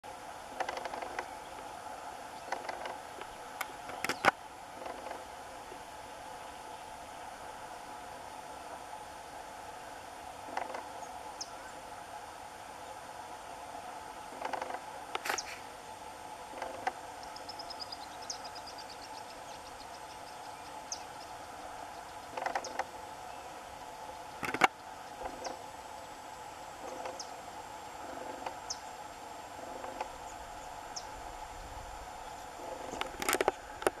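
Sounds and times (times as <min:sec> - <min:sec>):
songbirds chirping and trilling: 0:00.0 - 0:34.0
steady low hum: 0:00.0 - 0:34.0
sharp clicks: 0:22.3 - 0:22.9, 0:24.4 - 0:25.6, 0:32.9 - 0:34.0.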